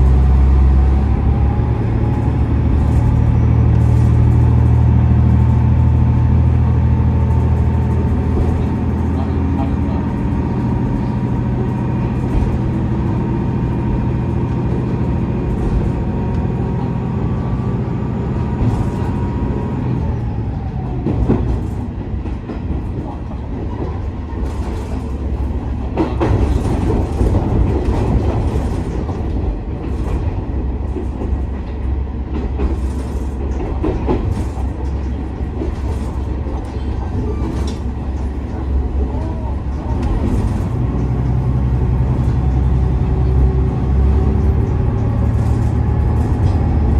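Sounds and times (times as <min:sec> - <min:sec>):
diesel engine running: 0:00.0 - 0:46.9
train rolling rumble: 0:00.0 - 0:46.9.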